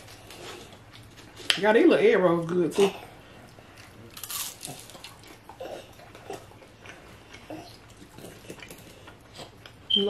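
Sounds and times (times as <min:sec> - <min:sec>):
chewing with small crackles: 0:00.0 - 0:01.7, 0:02.3 - 0:10.0
crisp crunch of biting: 0:04.1 - 0:05.3.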